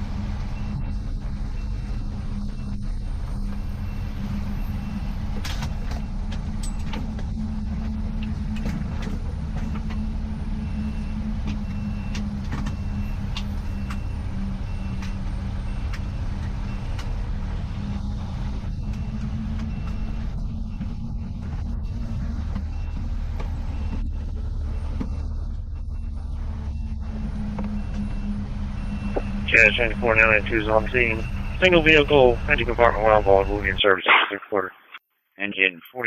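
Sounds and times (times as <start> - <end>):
fire engine drone: 0.0 - 35.6
faint high beeps: 25.9 - 34.5.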